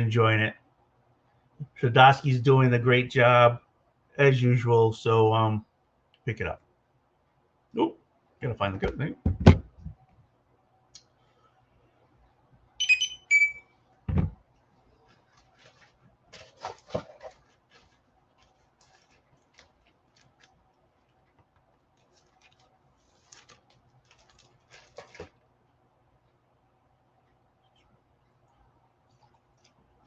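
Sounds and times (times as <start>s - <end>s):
dull thump on table: 8.8s - 10.0s, 14.1s - 14.4s
short high-pitched chirps: 12.8s - 13.7s
rustling of paper and plastic: 15.0s - 25.5s.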